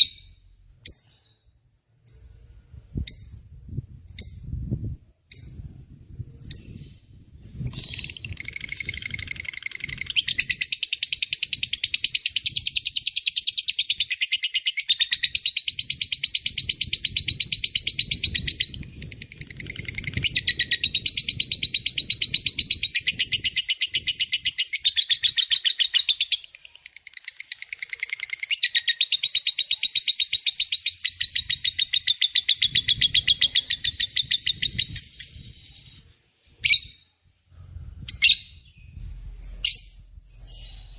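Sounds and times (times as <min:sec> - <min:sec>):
lovebird chattering trill: 0:06.4 - 0:35.6.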